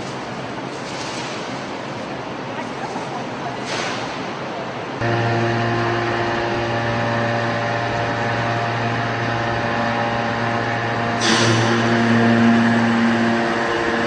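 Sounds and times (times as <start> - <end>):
hydraulic baler power unit humming: 5.0 - 14.0.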